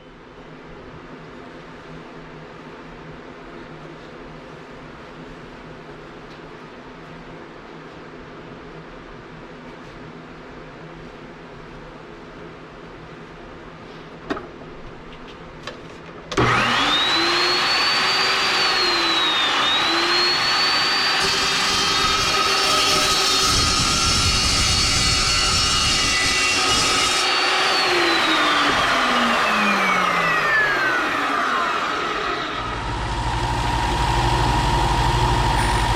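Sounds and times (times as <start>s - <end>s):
electric tool motor whining: 16.4s - 35.9s.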